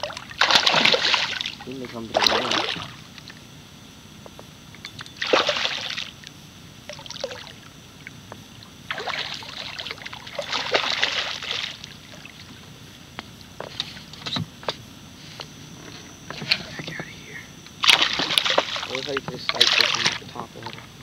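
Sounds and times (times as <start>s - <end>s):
water splashing and sloshing: 0.0s - 3.5s, 4.8s - 14.8s, 17.8s - 21.0s.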